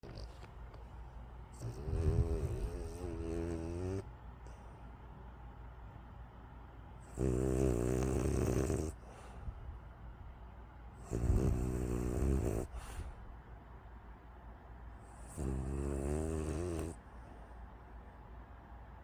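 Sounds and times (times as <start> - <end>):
dog snoring: 0.0 - 0.6, 1.5 - 4.1, 7.0 - 9.2, 11.0 - 13.1, 15.1 - 17.0
dog breathing quietly: 0.0 - 5.1, 7.2 - 9.9, 11.0 - 13.4.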